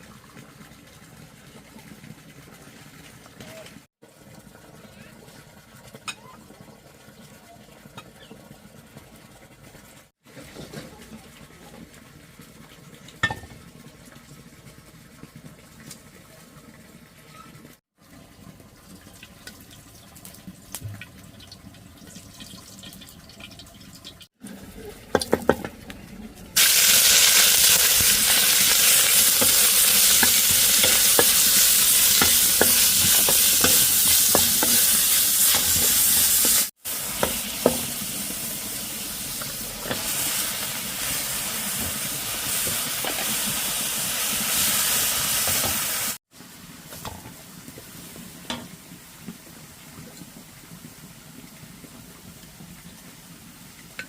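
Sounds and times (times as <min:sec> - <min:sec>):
food sizzling in hot oil: 0:19.2 - 0:25.7, 0:26.6 - 0:46.2
utensil scraping a pan: 0:27.3 - 0:38.0.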